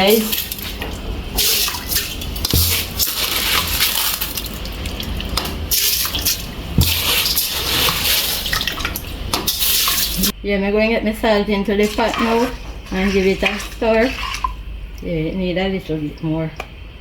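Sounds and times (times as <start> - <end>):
water pouring into a pot: 0.0 - 10.3
dull knock of a pot: 2.5 - 3.8, 6.8 - 7.3.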